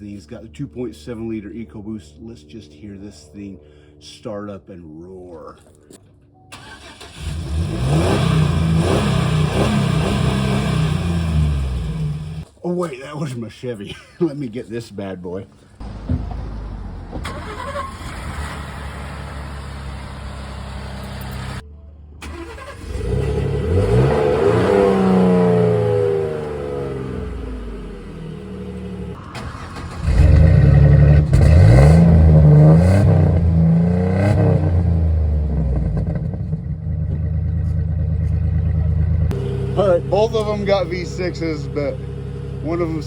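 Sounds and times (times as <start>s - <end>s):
truck engine idling and revving: 6.6s - 12.5s, 15.8s - 43.0s.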